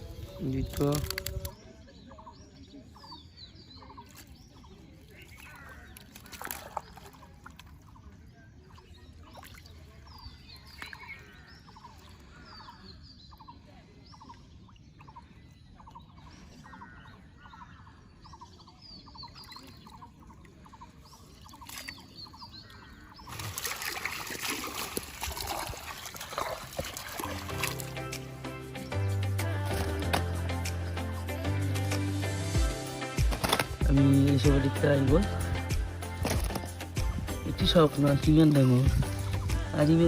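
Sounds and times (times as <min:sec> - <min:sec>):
low murmur of water: 0:00.0 - 0:27.9
water splashing and pouring: 0:05.0 - 0:08.0, 0:23.2 - 0:28.4.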